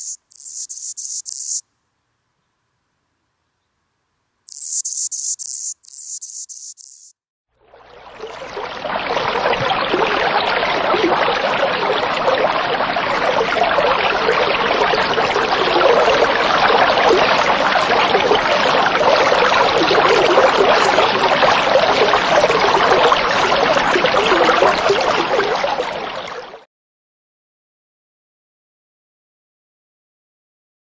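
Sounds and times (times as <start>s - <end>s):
running water rushing: 7.6s - 26.6s.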